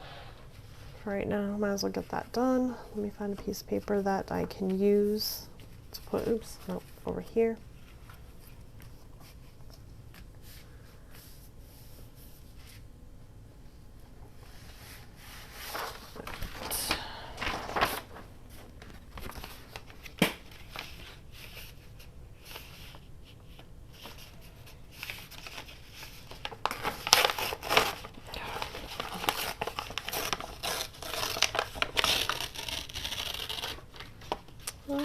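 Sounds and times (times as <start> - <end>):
paper rustling and crinkling: 14.4 - 35.0.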